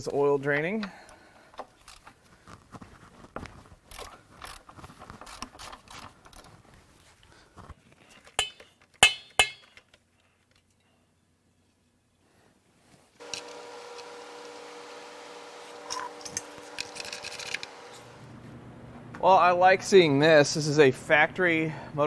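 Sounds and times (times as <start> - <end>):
hand tools rattling against metal: 13.2 - 18.2
sharp metallic clinks: 13.2 - 18.2.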